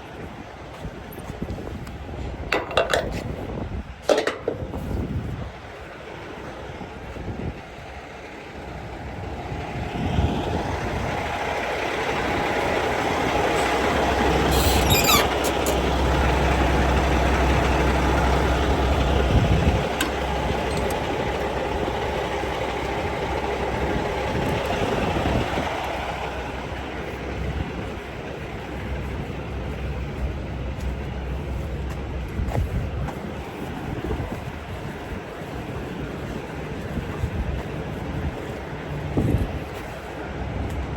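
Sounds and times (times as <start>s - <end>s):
heavy vehicle engine rumbling: 0.0s - 40.9s
high squeal: 14.5s - 15.8s.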